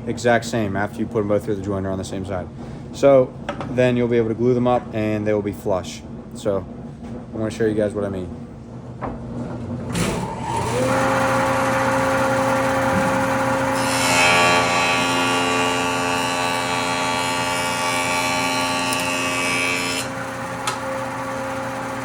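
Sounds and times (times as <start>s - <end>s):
jointer motor whine: 9.9s - 22.0s.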